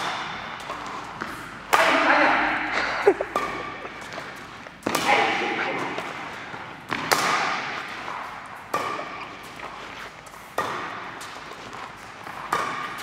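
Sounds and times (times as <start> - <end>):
racket hitting shuttlecock: 0.0 - 13.0.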